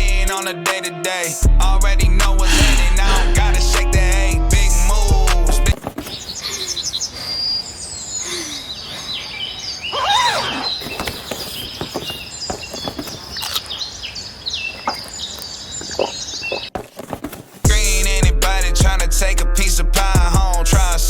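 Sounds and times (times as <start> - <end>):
birds chirping and trilling: 6.0 - 16.8.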